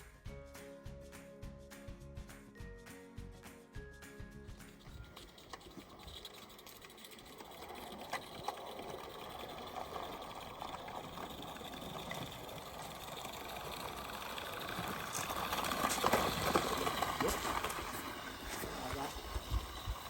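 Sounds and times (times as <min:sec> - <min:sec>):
model locomotive running: 0:04.4 - 0:20.0
wheel clicks: 0:04.6 - 0:20.0.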